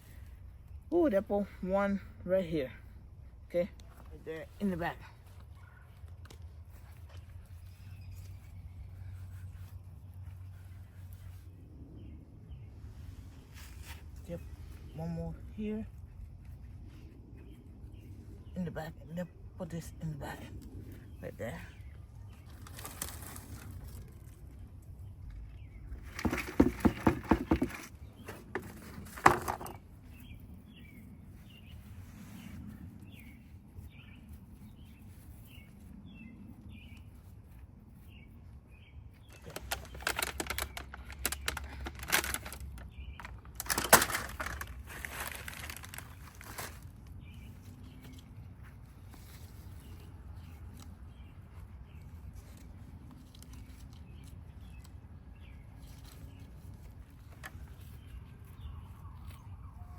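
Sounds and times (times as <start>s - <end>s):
small birds chirping: 0.0s - 59.9s
rustling and rapid knocking: 26.0s - 29.8s.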